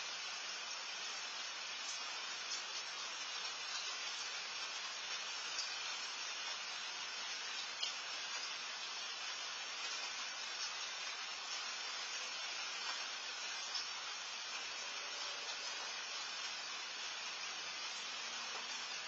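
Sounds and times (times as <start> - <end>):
steady rain hiss: 0.0 - 19.0
faint drips ticking: 7.3 - 8.6.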